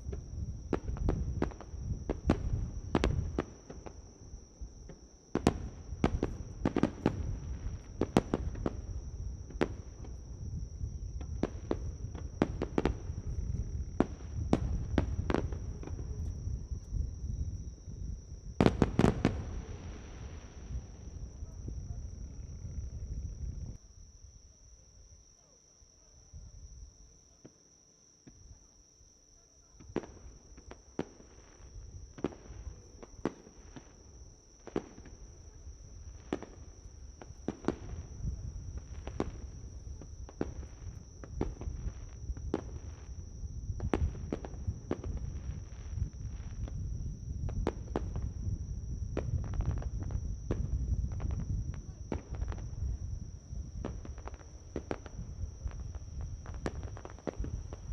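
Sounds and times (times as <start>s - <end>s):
insects trilling: 0.0s - 57.9s
fireworks cracking: 18.6s - 21.3s, 49.2s - 57.9s.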